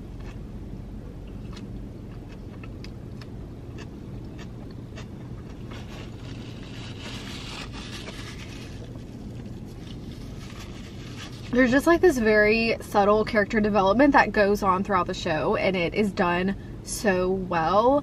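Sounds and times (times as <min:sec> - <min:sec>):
low hum inside car: 0:00.0 - 0:18.0
chewing with wet clicks: 0:01.3 - 0:05.6
paper napkin rustling: 0:05.6 - 0:11.8.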